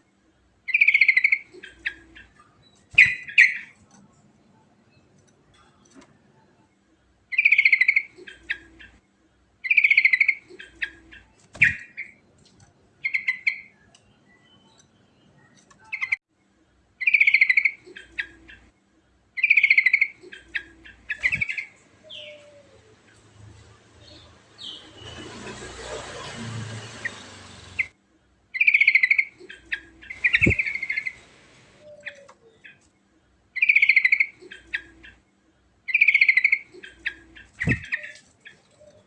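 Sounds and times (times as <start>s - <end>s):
bird singing rolling song: 0.7s - 3.8s, 7.3s - 9.0s, 9.6s - 12.2s, 17.0s - 18.7s, 19.4s - 25.5s, 28.6s - 32.8s, 33.6s - 35.3s, 35.9s - 39.0s.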